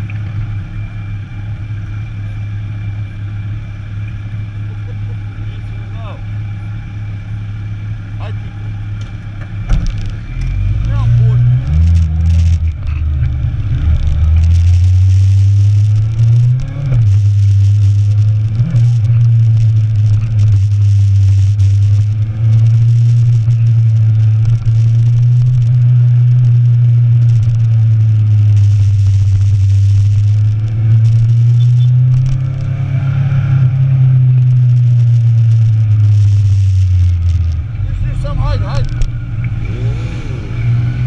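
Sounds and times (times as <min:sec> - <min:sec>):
motorcycle engine: 0:00.0 - 0:41.0
wind rushing: 0:39.5 - 0:41.0.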